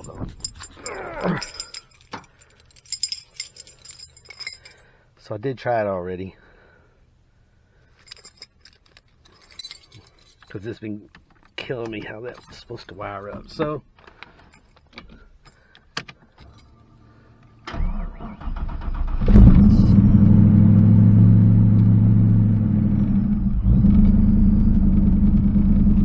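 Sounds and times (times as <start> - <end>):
car engine cranking: 0.0 - 4.8, 17.7 - 19.7.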